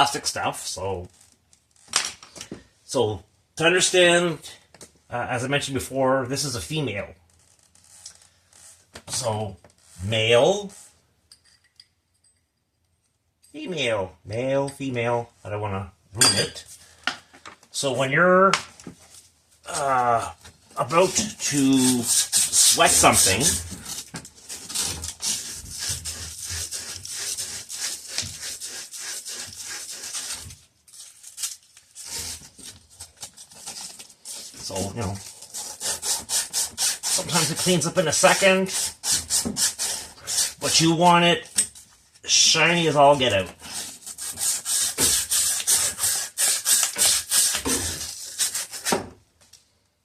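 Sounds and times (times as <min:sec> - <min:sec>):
emery cloth scraping metal pipe: 0:20.8 - 0:30.5, 0:34.2 - 0:41.7.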